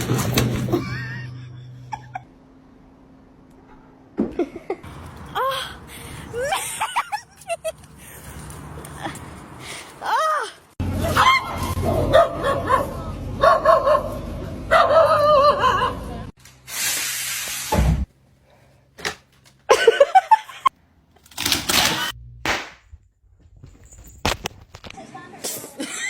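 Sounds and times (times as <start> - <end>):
dog barking: 11.2 - 15.9.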